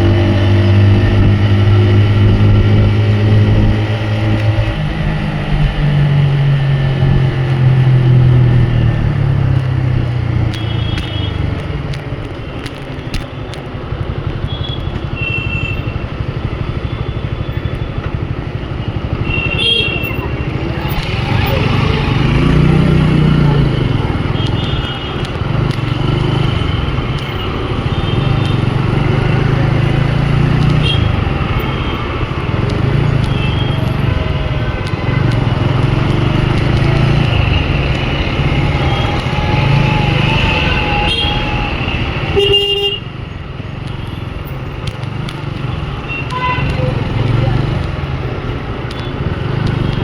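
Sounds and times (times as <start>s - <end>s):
motorcycle engine running: 15.8s - 43.0s
vehicle horns tooting: 19.2s - 43.2s, 46.0s - 47.4s.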